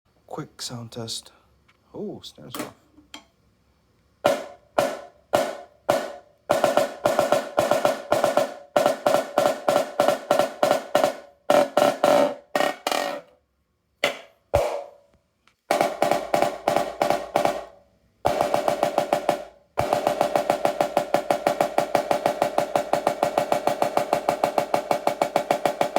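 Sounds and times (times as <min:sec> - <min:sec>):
snare drum strokes: 0:04.2 - 0:13.2, 0:14.0 - 0:15.0, 0:15.7 - 0:17.7, 0:18.3 - 0:25.9.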